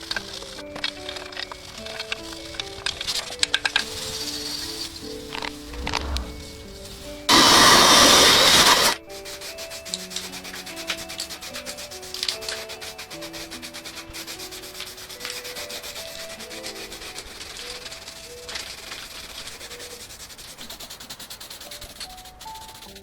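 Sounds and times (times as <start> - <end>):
soft melodic background music: 0.0 - 19.5, 21.6 - 23.0
loud rough rubbing: 5.5 - 9.0.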